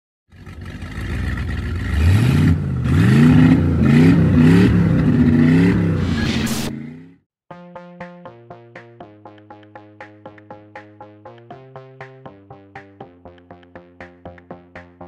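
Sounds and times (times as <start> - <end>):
outboard engines revving: 0.3 - 6.0.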